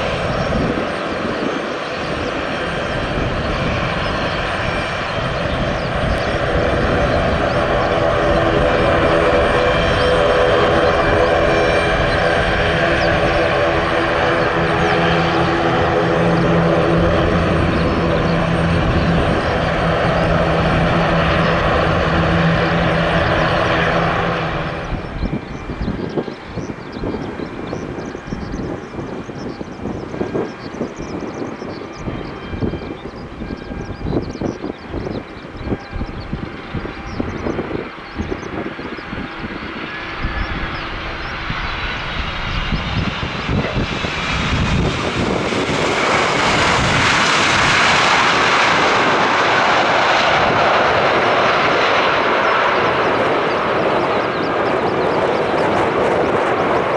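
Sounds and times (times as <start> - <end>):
airliner engines running: 0.0 - 56.9
wind buffeting microphone: 0.0 - 56.9.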